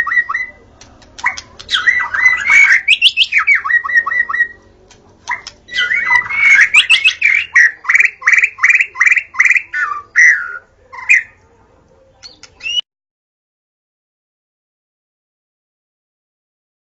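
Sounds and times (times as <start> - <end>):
bird singing whistled phrases: 1.6 - 4.6, 5.3 - 11.3, 12.2 - 12.8.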